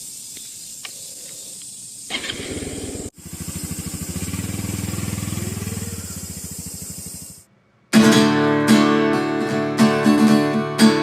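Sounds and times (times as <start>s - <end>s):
motorcycle engine starting and idling: 2.1s - 9.0s.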